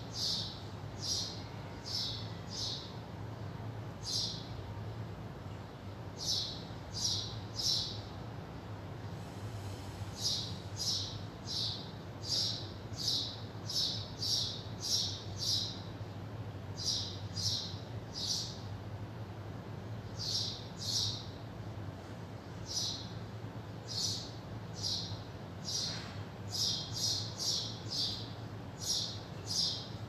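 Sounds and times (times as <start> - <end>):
bird chirping: 0.0 - 3.0, 4.0 - 4.5, 6.2 - 8.1, 10.2 - 15.9, 16.8 - 18.6, 20.1 - 21.4, 22.6 - 23.2, 23.8 - 30.0
steady low hum: 0.0 - 30.0.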